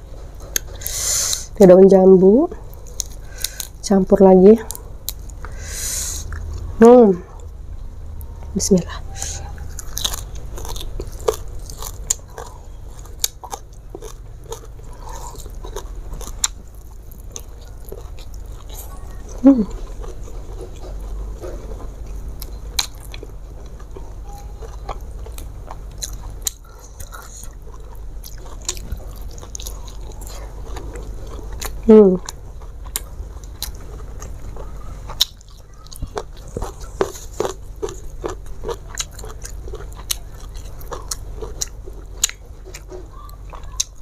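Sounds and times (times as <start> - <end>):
close chewing with crunches: 0.2 - 1.5, 2.6 - 3.9, 9.1 - 44.0
person humming: 19.4 - 19.8.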